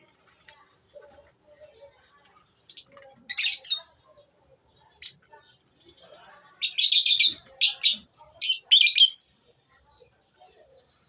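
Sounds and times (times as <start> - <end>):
lovebirds chirping: 1.8 - 11.0.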